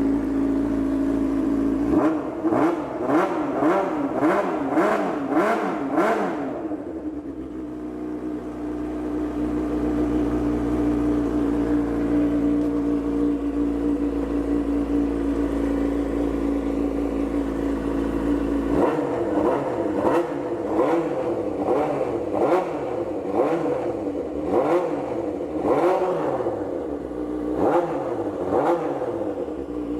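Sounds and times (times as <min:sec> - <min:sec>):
motorcycle engine idling and revving: 0:00.0 - 0:29.9.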